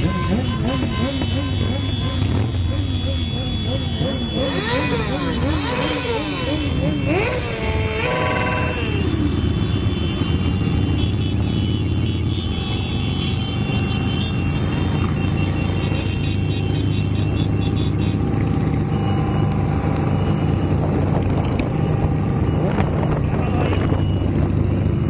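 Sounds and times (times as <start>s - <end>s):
group of motorcycles: 0.0s - 25.0s
motorcycle engine cruising: 0.0s - 25.0s
wind noise: 20.5s - 25.0s.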